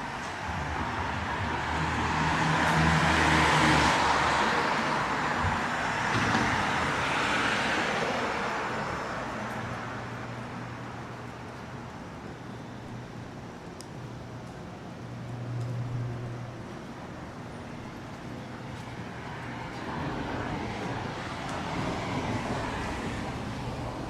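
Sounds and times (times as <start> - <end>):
motor vehicle passing by: 0.4 - 8.6.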